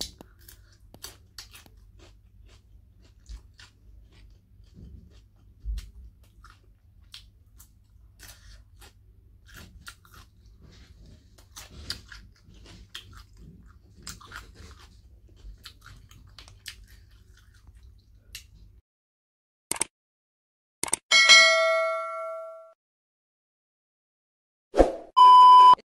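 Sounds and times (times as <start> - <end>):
chewing and crunching chili: 0.0 - 18.8.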